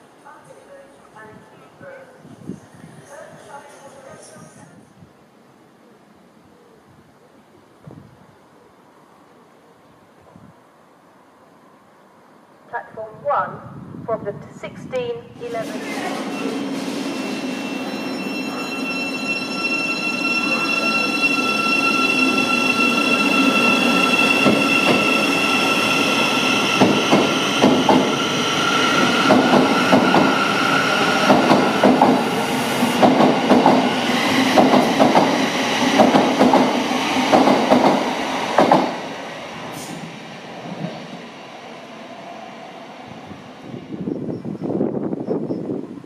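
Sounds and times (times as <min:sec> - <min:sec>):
train rumble: 0:19.7 - 0:41.3.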